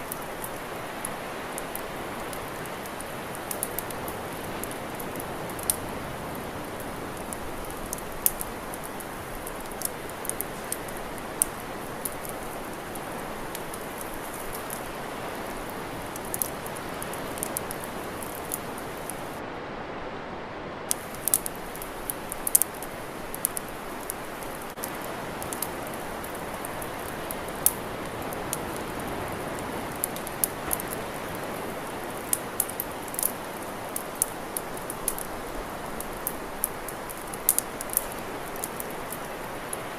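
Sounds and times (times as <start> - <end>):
campfire crackling and popping: 0.0 - 19.4, 20.9 - 39.9
steady rushing hiss: 0.0 - 19.4, 20.7 - 39.9.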